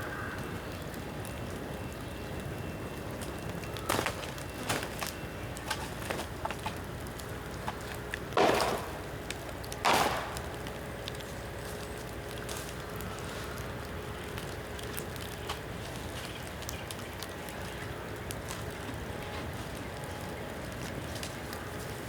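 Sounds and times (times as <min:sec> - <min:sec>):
bonfire burning and crackling: 0:00.0 - 0:22.0
bamboo bursting with sharp pops: 0:03.8 - 0:12.8.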